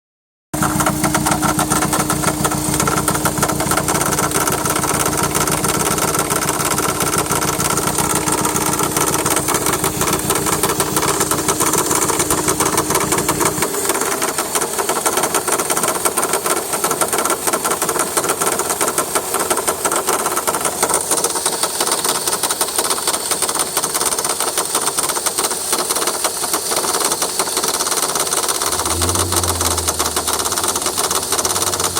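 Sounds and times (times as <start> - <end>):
car engine idling: 0.6 - 13.6, 28.5 - 31.9
fast steady engine ticking: 0.6 - 31.9.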